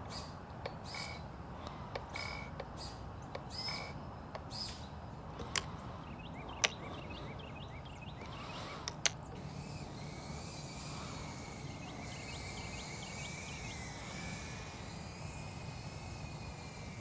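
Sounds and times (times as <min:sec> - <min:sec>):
small birds chirping: 0:00.0 - 0:16.9
sharp clicks: 0:06.5 - 0:07.1, 0:08.2 - 0:09.2.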